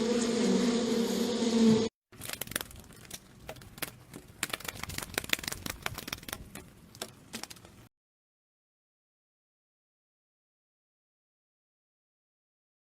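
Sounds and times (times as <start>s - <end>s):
bee buzzing: 0.0s - 1.9s.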